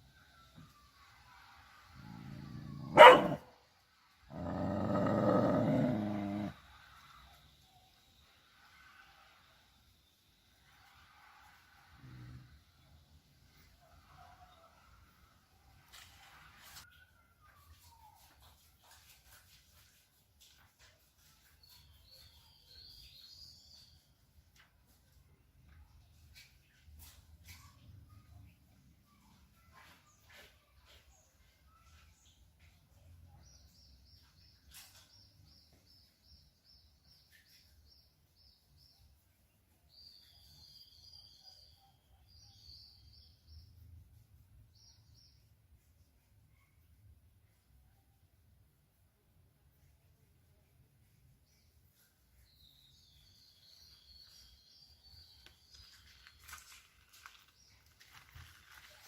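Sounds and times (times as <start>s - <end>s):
small bird chirping: 51.2s - 59.0s.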